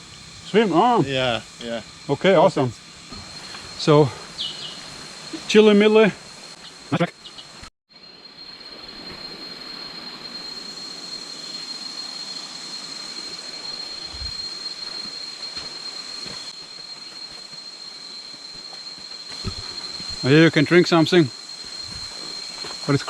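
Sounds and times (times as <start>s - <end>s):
jungle insects droning: 0.0s - 23.0s.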